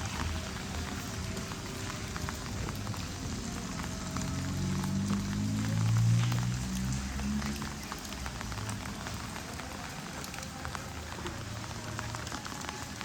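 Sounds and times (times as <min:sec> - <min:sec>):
rain falling on surfaces: 0:00.0 - 0:13.0.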